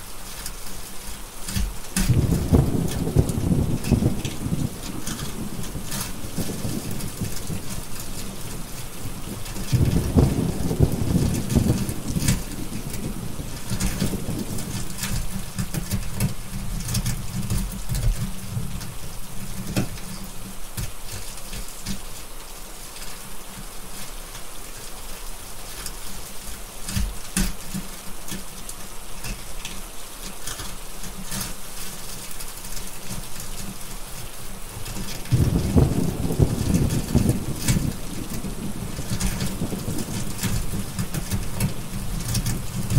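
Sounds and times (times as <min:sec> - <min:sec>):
steady rain: 0:00.0 - 0:42.9
wood fire crackles: 0:00.0 - 0:42.9
thunder rumble: 0:02.1 - 0:18.8, 0:34.8 - 0:42.9.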